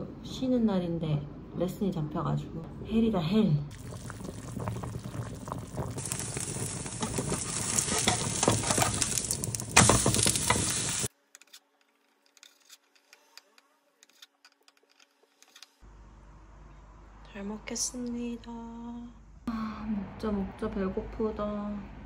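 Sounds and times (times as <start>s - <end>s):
pancake sizzling in oil: 3.7s - 11.1s
pot boiling: 3.7s - 11.1s
spatula clatter: 5.8s - 11.1s.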